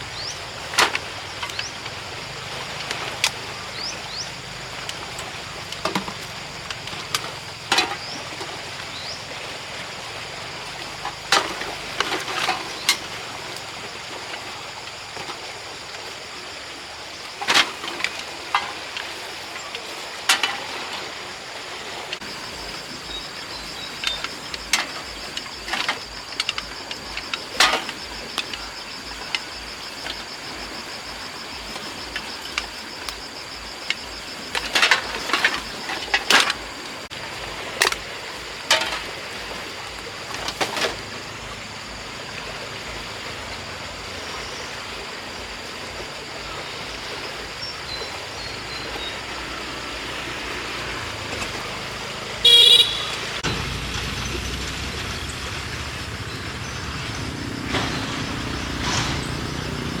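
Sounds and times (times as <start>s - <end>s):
knocks and clatters: 4.8s - 8.7s, 22.1s - 30.7s, 57.6s - 60.0s
vehicle engine running: 48.4s - 60.0s
vehicle horn toot: 52.4s - 53.5s.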